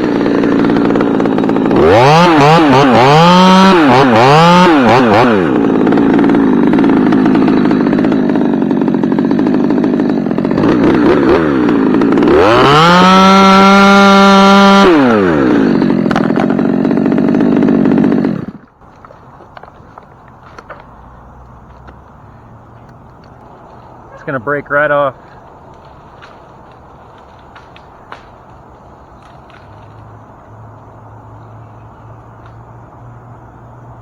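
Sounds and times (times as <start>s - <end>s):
chainsaw revving: 0.0s - 18.8s.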